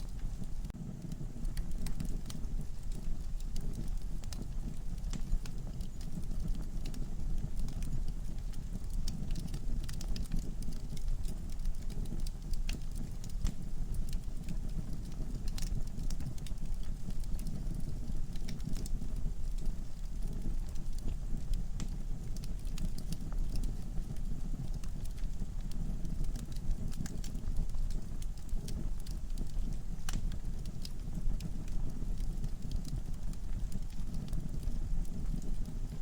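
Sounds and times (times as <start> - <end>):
wood fire crackling and popping: 0.0 - 36.0.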